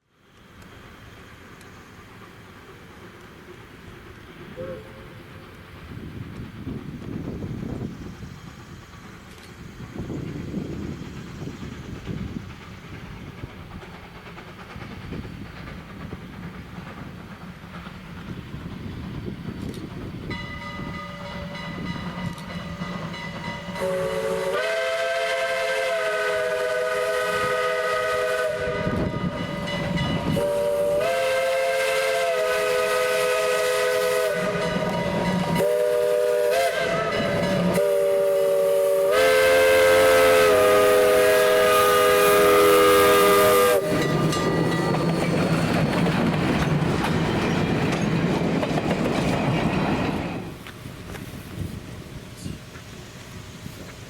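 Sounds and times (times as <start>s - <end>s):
moving train noise: 0.0s - 54.0s
steam whistle: 4.6s - 5.4s, 23.1s - 44.5s.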